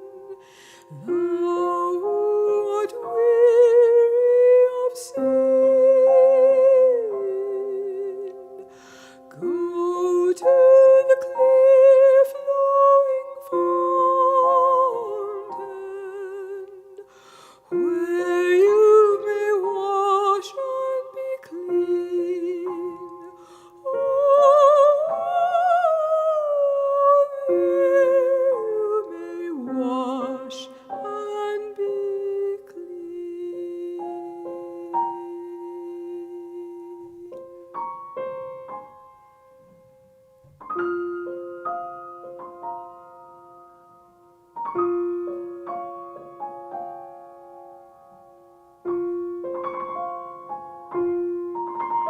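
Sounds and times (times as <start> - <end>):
soprano singing with vibrato: 0.0 - 38.4
piano accompaniment: 0.0 - 52.0.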